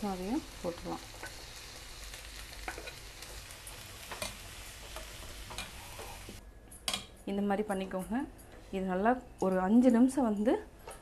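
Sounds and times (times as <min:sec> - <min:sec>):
beans sizzling in a pan: 0:00.0 - 0:06.4.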